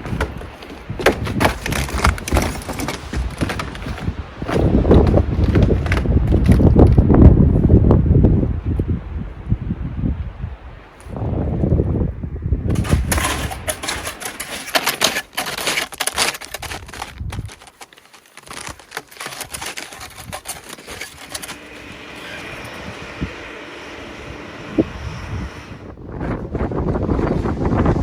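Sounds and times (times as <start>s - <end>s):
dense crackling rattle: 0.0s - 7.0s, 12.7s - 22.4s
strong wind on microphone: 0.0s - 14.1s, 19.5s - 28.0s.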